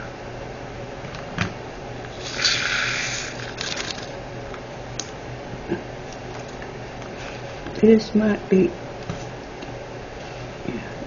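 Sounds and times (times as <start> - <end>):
plastic beads pouring rattle: 2.2 - 4.1.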